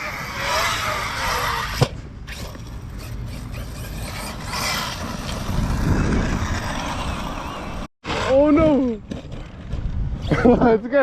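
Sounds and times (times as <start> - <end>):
electric rc truck motor whine: 0.0 - 7.9.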